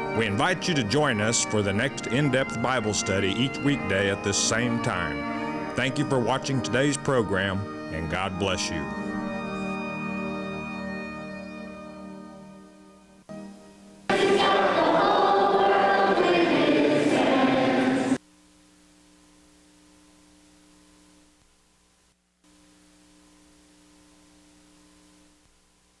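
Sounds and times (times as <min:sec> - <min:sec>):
faint steady hum: 0:12.7 - 0:26.0
choir singing: 0:14.1 - 0:18.2.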